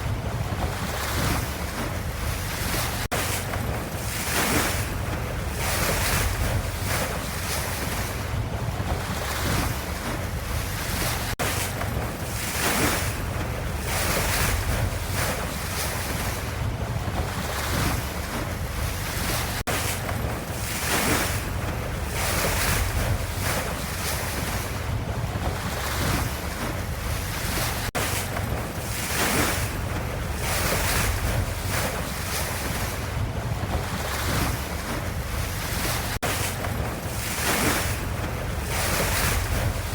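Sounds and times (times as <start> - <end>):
ocean waves washing: 0.0 - 39.9
steady low rumble: 37.8 - 39.9.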